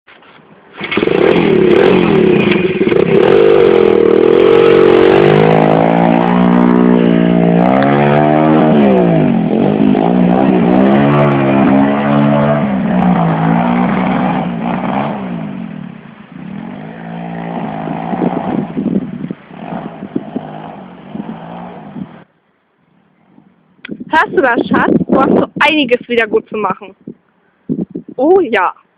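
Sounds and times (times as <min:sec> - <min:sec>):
motorbike engine revving: 0:00.7 - 0:22.3.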